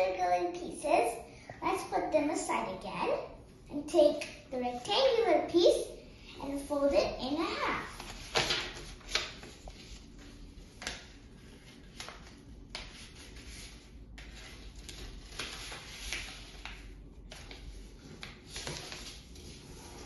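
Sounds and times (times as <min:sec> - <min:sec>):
paper rustling and crinkling: 0:07.9 - 0:20.0.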